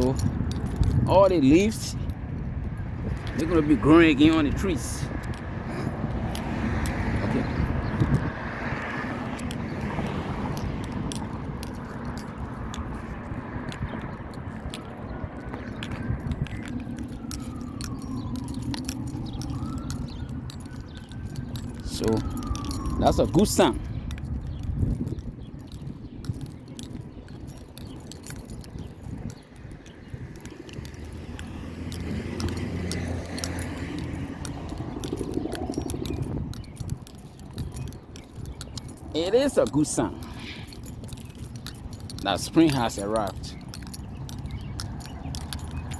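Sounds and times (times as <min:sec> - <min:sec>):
small clicks and crackles: 0:09.3 - 0:23.0, 0:24.1 - 0:45.9.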